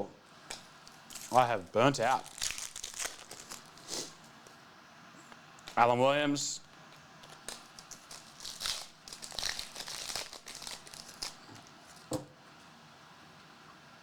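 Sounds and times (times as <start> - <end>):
plastic wrapping crinkling: 0.5 - 4.5, 7.2 - 12.1
trading cards rustling: 0.8 - 4.3, 7.2 - 12.1.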